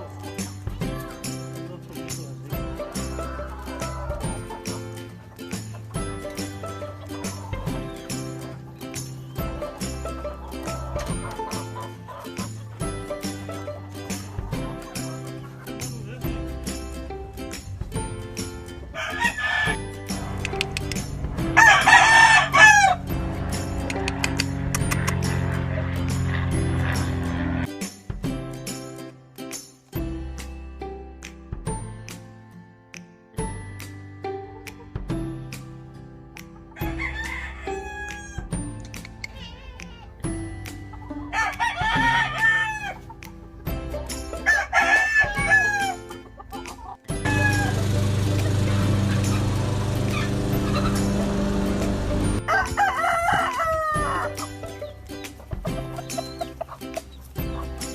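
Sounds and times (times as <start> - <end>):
background music with steady beat: 0.0 - 57.9
roosters crowing: 2.8 - 4.9, 9.4 - 15.6, 18.8 - 20.7, 21.3 - 27.7, 36.8 - 38.6, 41.0 - 43.2, 44.3 - 46.5, 47.1 - 55.0
rooster crowing: 18.9 - 19.9, 21.6 - 23.0, 36.8 - 38.5, 41.3 - 43.0, 44.4 - 46.1, 47.2 - 48.2, 52.3 - 54.4.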